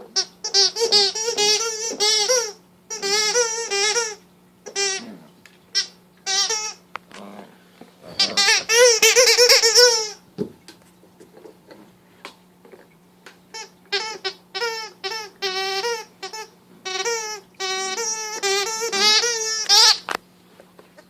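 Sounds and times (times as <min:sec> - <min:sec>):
dog toy squeaker squealing: 0:00.2 - 0:05.1, 0:05.7 - 0:06.8, 0:08.1 - 0:10.2, 0:13.5 - 0:20.1.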